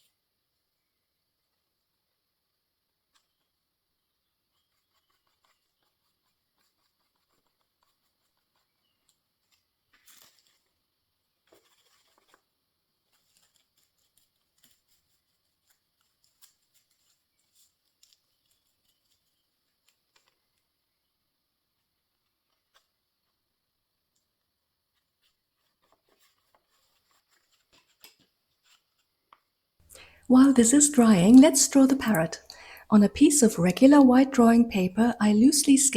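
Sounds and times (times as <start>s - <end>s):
tissue paper rustling: 4.6s - 20.4s, 24.9s - 29.1s.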